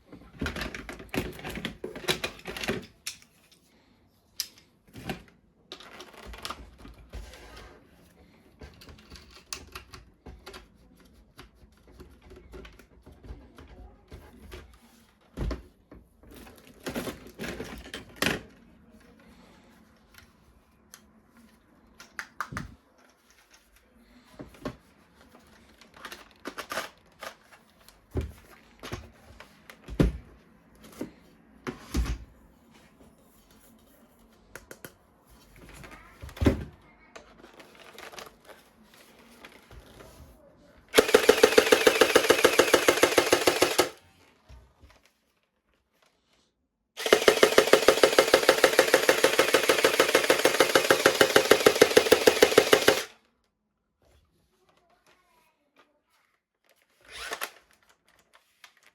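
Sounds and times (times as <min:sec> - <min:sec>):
plastic toy parts clicking: 0:41.0 - 0:44.0, 0:47.0 - 0:53.1.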